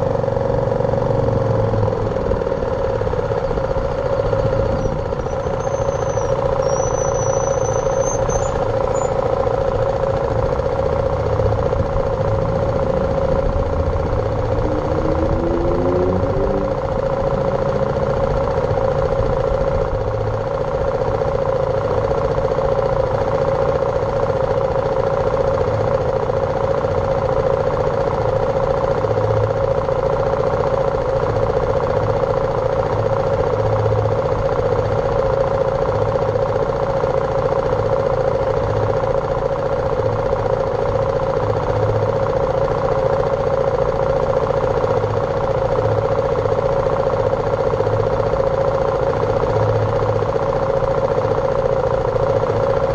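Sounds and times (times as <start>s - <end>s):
motorcycle engine running: 0.0s - 52.9s
wind and road noise: 7.8s - 20.8s.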